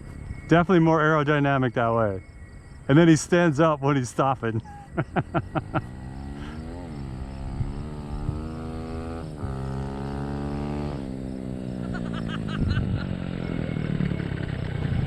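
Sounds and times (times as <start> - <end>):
dirt bike passing: 4.8 - 15.0.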